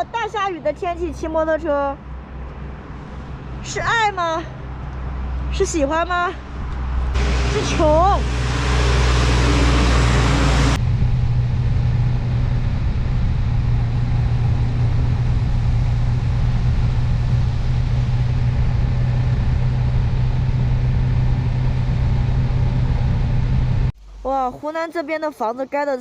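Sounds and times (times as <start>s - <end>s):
motorcycle engine hum: 6.4s - 24.2s.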